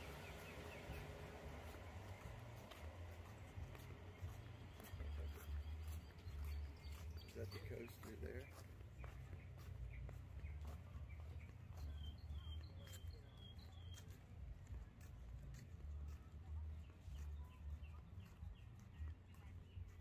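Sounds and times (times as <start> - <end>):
bird chirping: 0.0 - 14.2
footsteps in flip-flops: 0.0 - 20.0.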